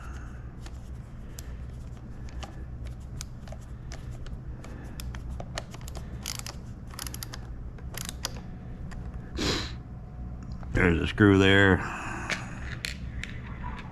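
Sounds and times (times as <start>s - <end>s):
steady low hum: 0.0s - 13.9s
plastic parts clicking and rattling: 0.6s - 9.1s.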